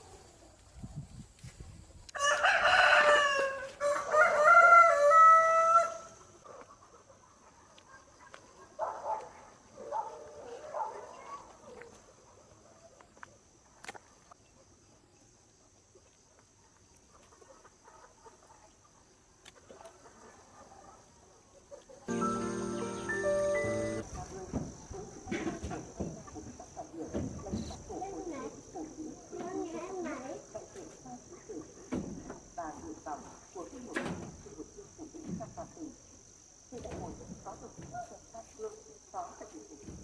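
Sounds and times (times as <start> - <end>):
rooster crowing: 2.2 - 6.2.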